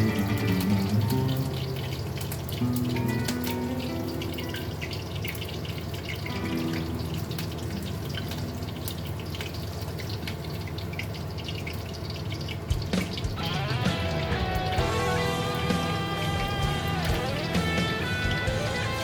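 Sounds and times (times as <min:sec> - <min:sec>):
faint instrumental music: 0:00.0 - 0:05.1, 0:12.7 - 0:19.0
tap water running into sink: 0:00.0 - 0:19.0.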